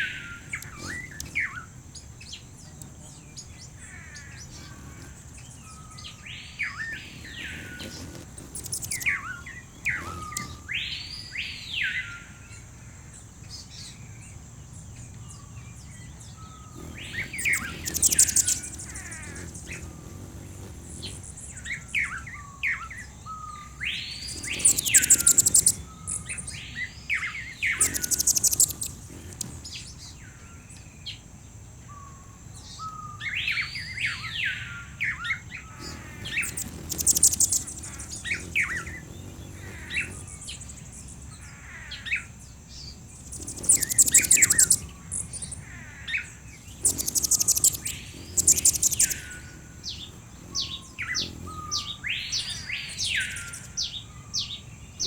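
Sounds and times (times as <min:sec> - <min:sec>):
high buzzy bird trills: 0:00.0 - 0:55.0
bird whistled call: 0:23.3 - 0:29.5, 0:43.4 - 0:45.0, 0:46.8 - 0:53.6
steady high whine: 0:35.7 - 0:41.6.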